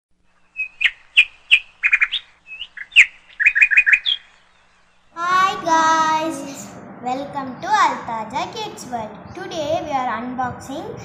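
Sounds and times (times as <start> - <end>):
bird chirping: 0.2 - 5.6.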